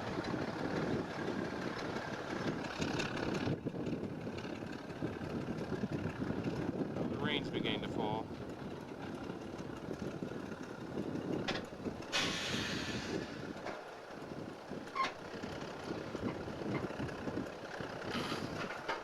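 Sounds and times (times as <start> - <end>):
engine low rumble: 0.0 - 19.0
air release hiss: 12.1 - 13.4.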